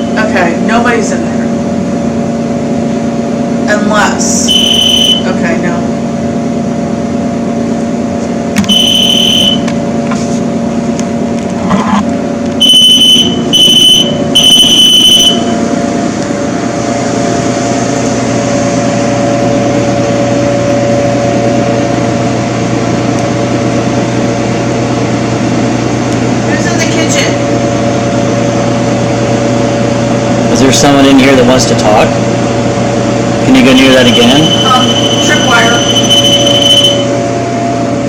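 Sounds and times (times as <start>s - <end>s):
steady electrical hum: 0.0s - 38.0s
high electronic beeps: 4.5s - 5.3s, 8.7s - 9.7s, 12.6s - 15.6s, 33.5s - 37.1s.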